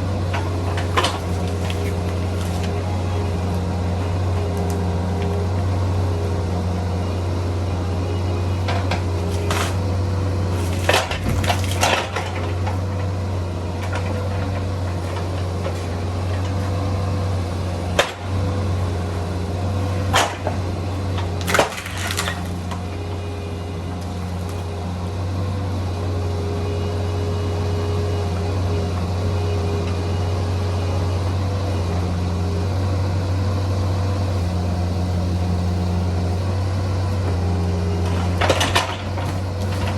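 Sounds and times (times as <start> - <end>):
excavator diesel engine running: 0.0 - 39.9
wood splintering cracks: 0.2 - 5.5, 8.6 - 23.0.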